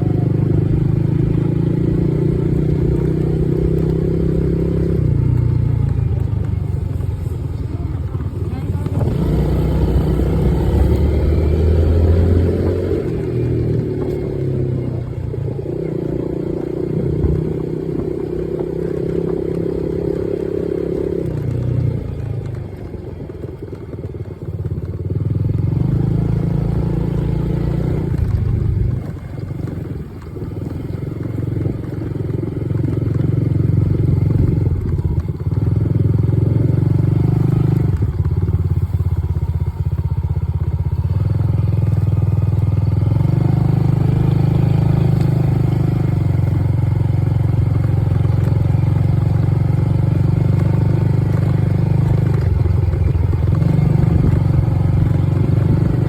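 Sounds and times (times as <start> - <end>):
dirt bike engine revving: 8.4 - 15.0.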